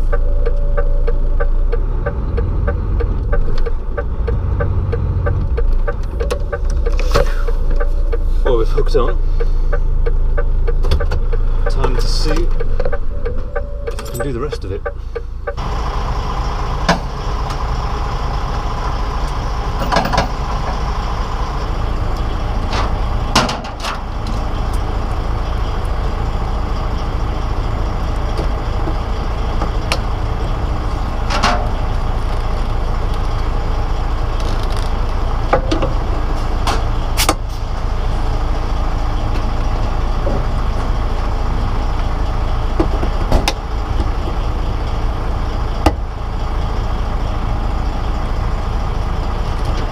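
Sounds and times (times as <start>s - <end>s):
knocks and clanks: 0.0s - 8.3s, 9.7s - 15.6s, 19.8s - 20.5s, 22.7s - 24.5s, 31.2s - 32.5s, 34.4s - 37.4s, 42.8s - 44.1s
diesel truck engine idling: 0.0s - 49.9s.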